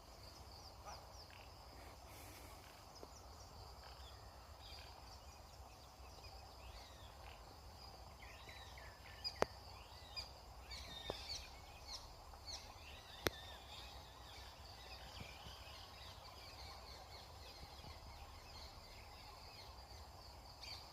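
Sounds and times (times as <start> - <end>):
birds chirping: 0.0 - 20.9
high insect chorus: 0.0 - 20.9.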